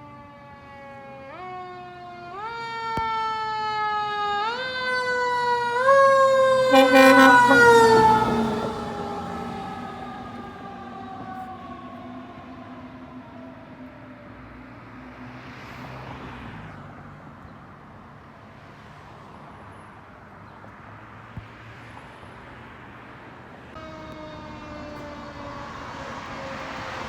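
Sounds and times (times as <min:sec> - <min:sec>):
emergency vehicle siren: 0:00.0 - 0:16.8, 0:23.6 - 0:27.0
vehicles passing by: 0:00.3 - 0:27.0.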